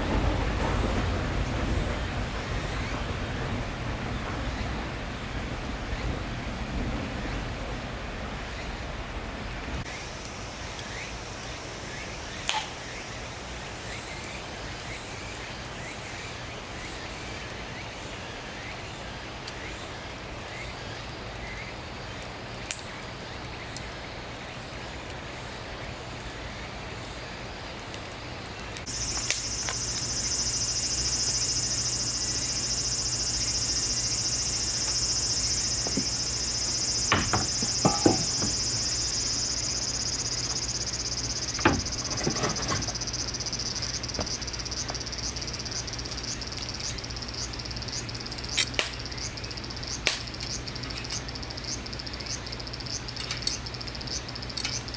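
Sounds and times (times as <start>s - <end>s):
insect buzzing high-pitched: 28.9s - 48.6s
sharp cracks and knocks: 48.6s - 49.0s, 50.0s - 50.6s.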